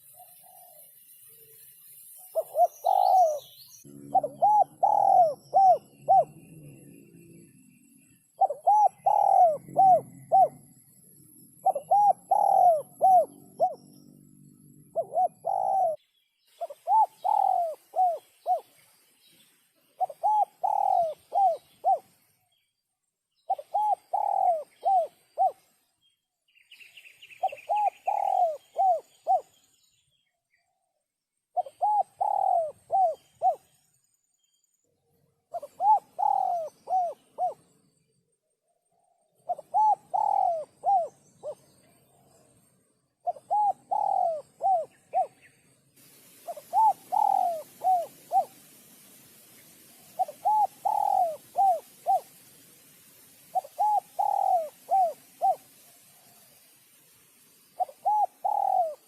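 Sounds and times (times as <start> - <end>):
dove cooing: 0.0 - 0.9, 2.3 - 10.9, 11.5 - 16.0, 16.6 - 18.8, 20.0 - 22.1, 23.5 - 25.6, 27.4 - 29.6, 31.6 - 33.7, 35.5 - 37.7, 39.5 - 41.7, 43.2 - 45.5, 46.3 - 48.8, 50.0 - 52.4, 53.4 - 56.3, 57.8 - 59.0.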